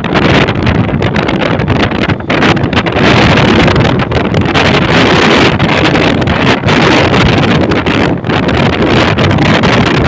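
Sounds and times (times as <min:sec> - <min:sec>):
motorcycle engine: 0:00.0 - 0:10.0
road noise: 0:00.0 - 0:10.0
wind buffeting microphone: 0:00.0 - 0:10.0.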